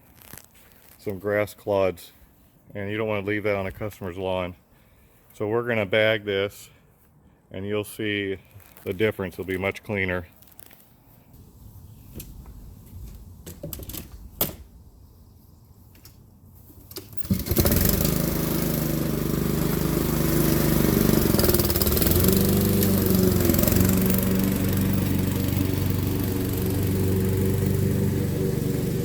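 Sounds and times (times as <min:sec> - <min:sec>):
lawn mower engine running: 0:16.9 - 0:29.0.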